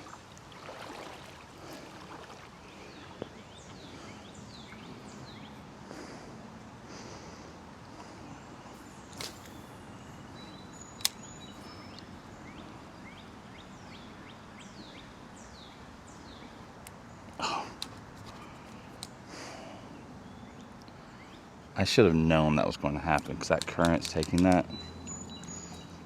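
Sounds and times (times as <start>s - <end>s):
outdoor background hiss: 0.0s - 26.0s
brief rustle: 9.1s - 9.6s
sharp clicks: 11.0s - 11.3s, 23.1s - 25.6s.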